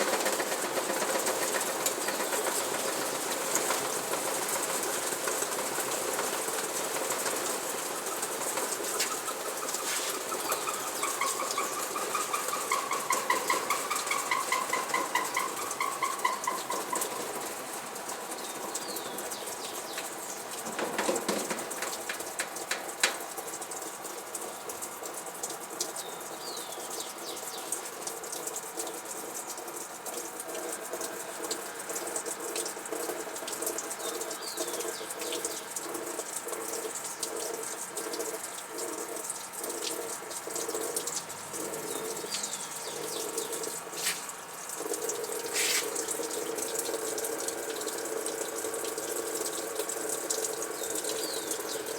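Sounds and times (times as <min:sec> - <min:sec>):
washing machine churning: 0:00.0 - 0:51.9
washing machine water rushing: 0:00.0 - 0:51.9
knocks: 0:20.7 - 0:22.2.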